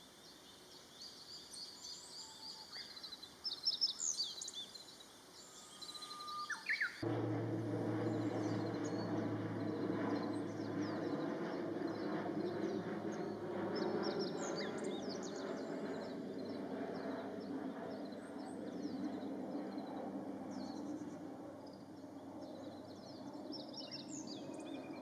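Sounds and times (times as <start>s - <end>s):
steady low hum: 7.0s - 23.4s.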